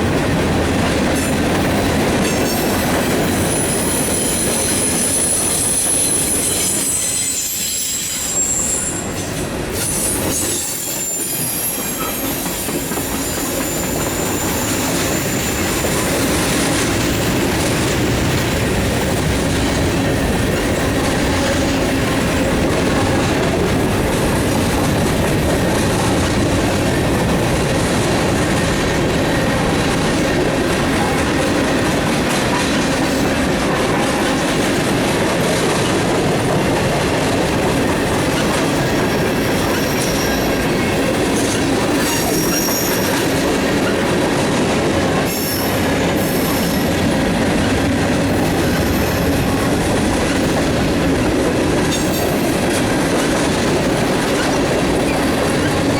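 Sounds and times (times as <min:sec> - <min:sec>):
freight train cars rolling past: 0:00.0 - 0:55.9
train wheel squeals: 0:02.2 - 0:19.6, 0:37.7 - 0:51.2, 0:51.8 - 0:55.9.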